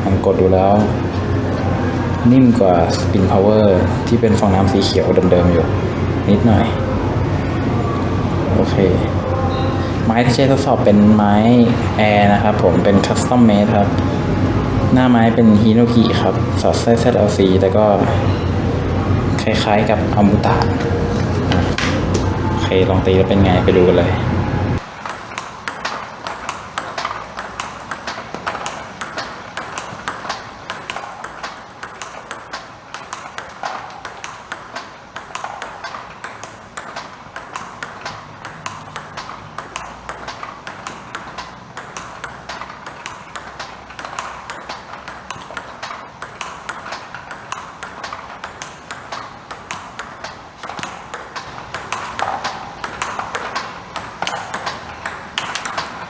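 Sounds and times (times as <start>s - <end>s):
ball bouncing on table: 24.8s - 56.0s
ping pong ball clicking off bat: 24.8s - 56.0s.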